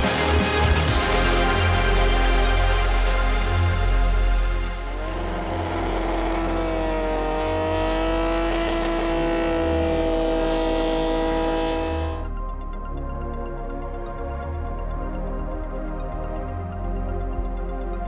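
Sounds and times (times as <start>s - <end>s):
car engine at high revs: 4.7s - 12.4s.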